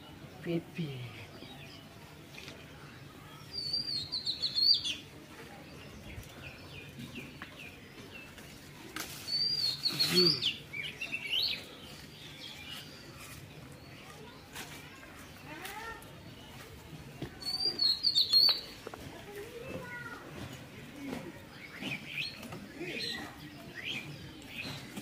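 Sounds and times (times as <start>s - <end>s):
bird chirping: 17.4s - 18.9s.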